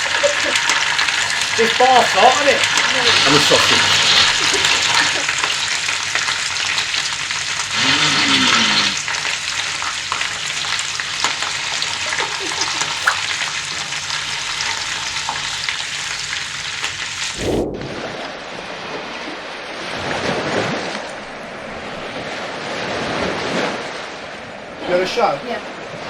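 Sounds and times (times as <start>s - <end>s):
sausages sizzling on a griddle: 0.0s - 17.4s.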